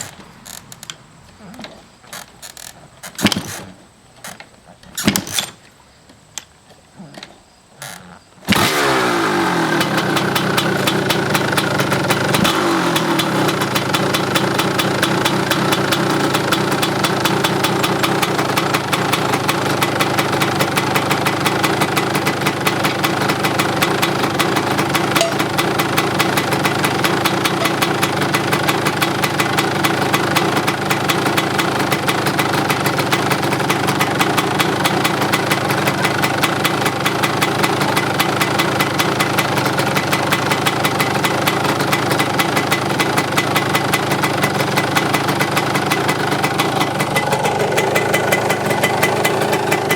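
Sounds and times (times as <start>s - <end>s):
dirt bike engine running: 1.5s - 3.6s, 8.4s - 49.9s
mechanical clicks: 2.2s - 5.6s.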